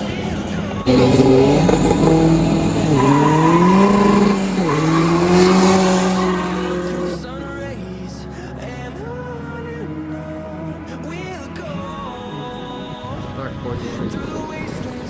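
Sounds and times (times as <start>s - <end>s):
diesel car accelerating hard: 0.0s - 9.6s.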